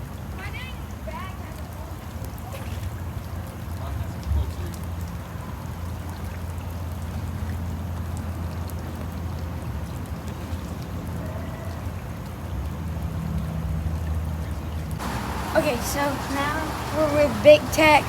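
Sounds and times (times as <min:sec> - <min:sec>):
rain falling: 0:12.1 - 0:18.0.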